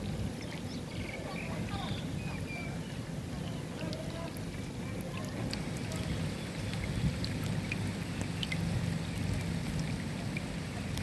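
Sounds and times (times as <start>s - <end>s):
raindrops ticking: 3.4s - 11.0s.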